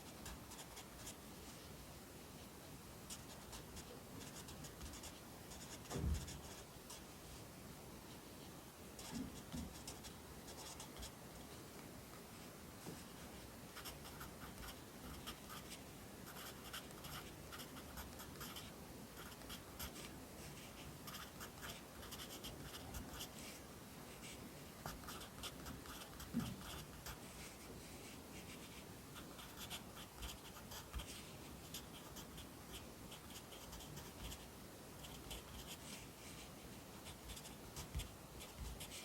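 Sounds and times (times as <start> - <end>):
pencil writing on paper: 3.1 - 6.6, 16.3 - 20.0, 20.6 - 23.3, 24.9 - 27.2, 29.4 - 34.4
soft thump: 5.9 - 6.3.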